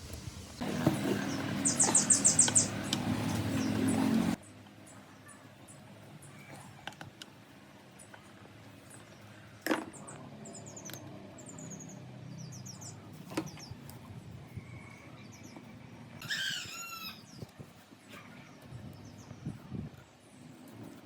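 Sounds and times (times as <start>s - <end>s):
small birds chirping: 0.8s - 6.8s, 7.9s - 21.0s
loud bird call: 16.2s - 17.3s.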